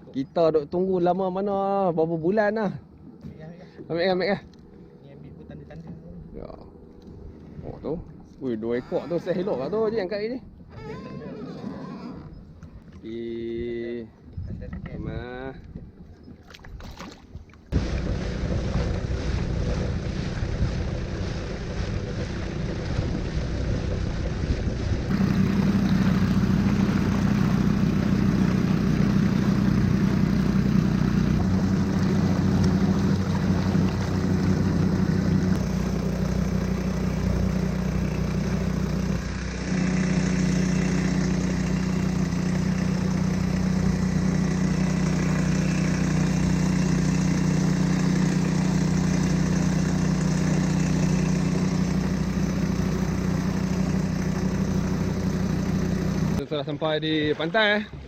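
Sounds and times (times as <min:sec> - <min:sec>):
water noise: 0:00.0 - 0:58.0
wind: 0:00.0 - 0:58.0
small motor running: 0:25.1 - 0:56.4.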